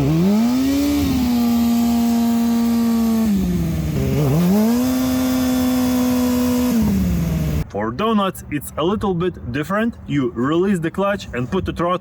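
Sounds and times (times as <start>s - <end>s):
motorcycle engine revving: 0.0s - 7.6s
rear tyre spinning: 0.0s - 7.6s.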